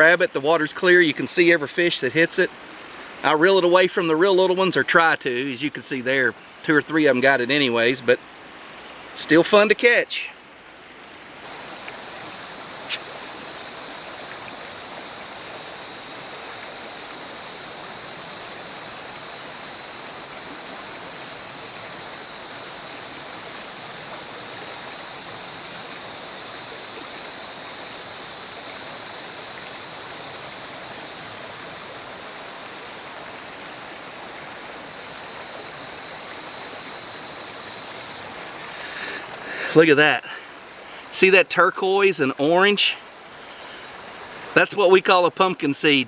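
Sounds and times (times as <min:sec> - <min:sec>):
river water rushing: 0:00.0 - 0:05.6, 0:06.3 - 0:46.0
thin high whine: 0:11.5 - 0:33.2.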